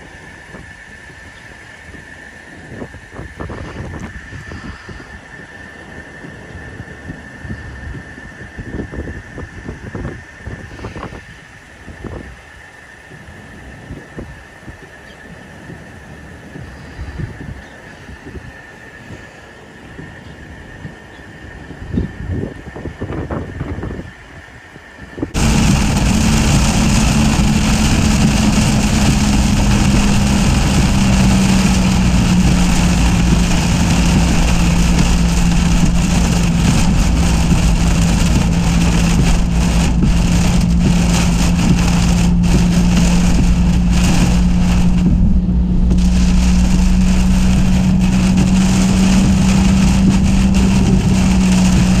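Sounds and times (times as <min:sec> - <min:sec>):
low vehicle hum: 0:25.2 - 0:52.0
heavy rain on vehicle roof: 0:25.4 - 0:52.0.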